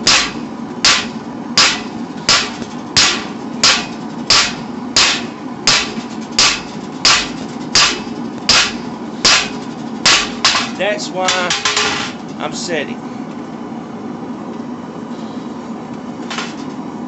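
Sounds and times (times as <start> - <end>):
hammer striking steel on anvil: 0.0 - 12.2.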